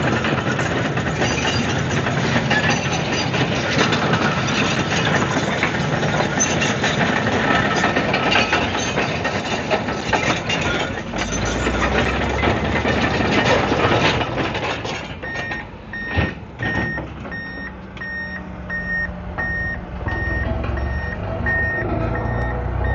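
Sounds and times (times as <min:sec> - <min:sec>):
bulldozer clattering: 0:00.0 - 0:22.9
diesel engine running: 0:00.0 - 0:22.9
reversing alarm beeping: 0:15.2 - 0:22.9.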